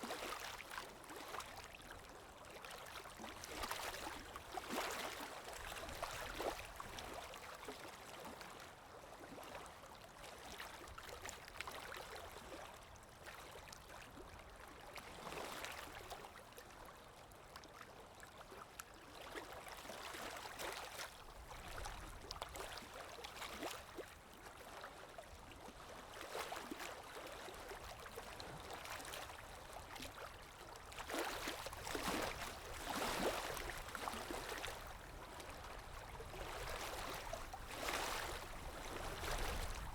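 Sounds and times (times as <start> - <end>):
river water lapping: 0.0 - 8.6, 18.7 - 39.9.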